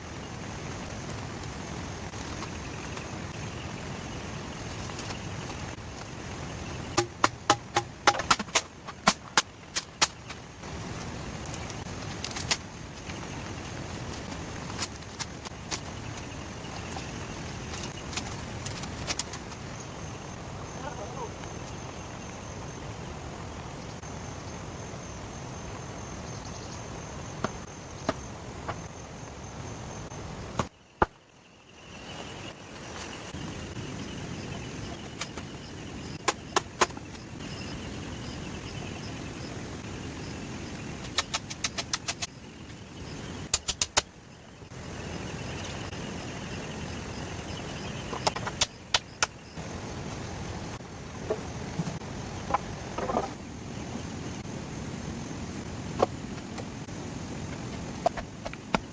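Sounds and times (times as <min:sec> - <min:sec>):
steady background hiss: 0:00.0 - 0:58.9.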